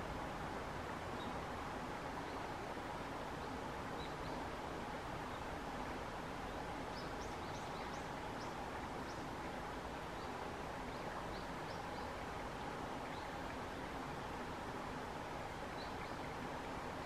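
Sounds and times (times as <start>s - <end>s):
small birds chirping: 6.5s - 9.4s, 10.0s - 12.2s, 15.5s - 16.8s.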